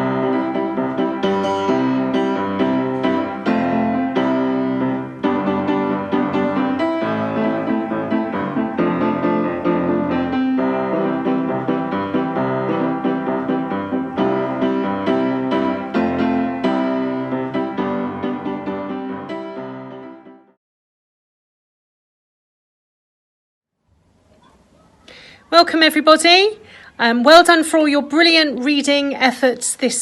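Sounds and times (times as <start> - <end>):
piano music: 0.0 - 20.6.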